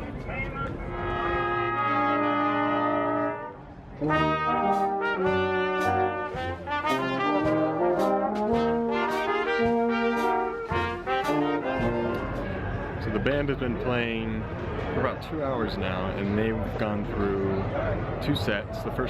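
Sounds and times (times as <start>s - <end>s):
brass band playing: 0.8s - 13.2s.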